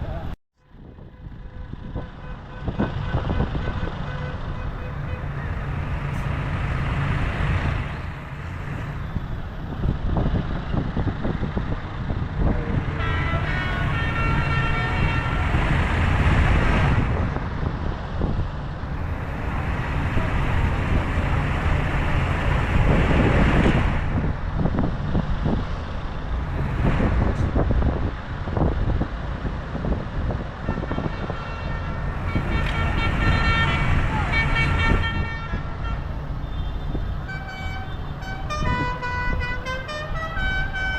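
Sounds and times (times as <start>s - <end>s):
tractor engines passing: 0.0s - 40.9s
horn sounding: 12.8s - 15.9s, 30.6s - 40.9s.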